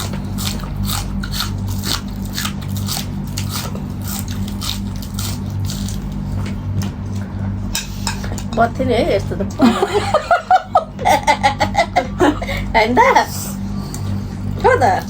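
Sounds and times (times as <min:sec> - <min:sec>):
mouth chewing food: 0:00.0 - 0:07.2
low electrical hum: 0:00.0 - 0:15.0.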